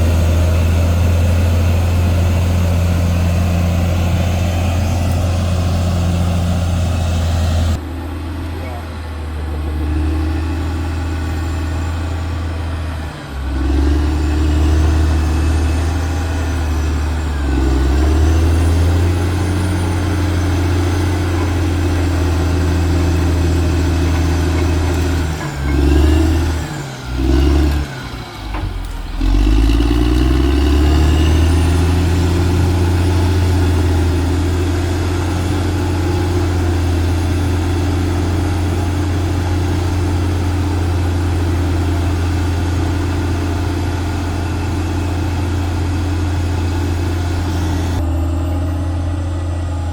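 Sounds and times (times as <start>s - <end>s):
bulldozer diesel engine working: 0.0s - 49.9s.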